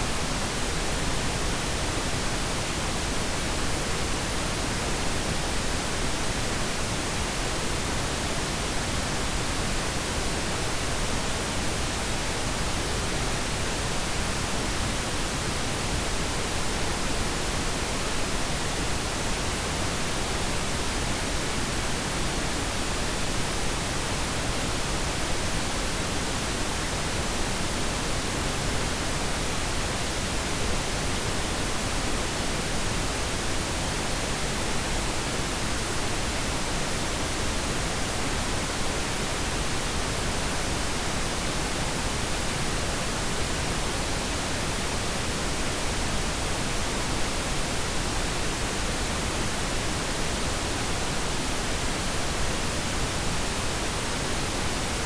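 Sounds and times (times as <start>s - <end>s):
pink noise hiss: 0.0s - 55.0s.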